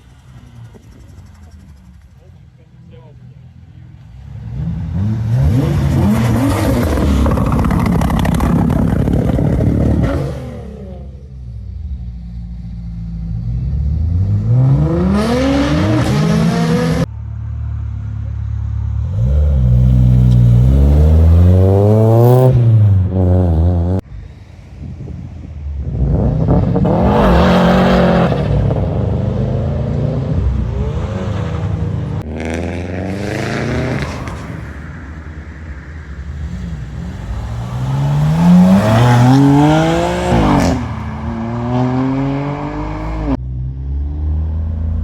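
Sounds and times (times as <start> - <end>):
car engines revving hard: 3.1 - 11.3, 13.2 - 17.1, 18.9 - 24.1, 25.5 - 43.4.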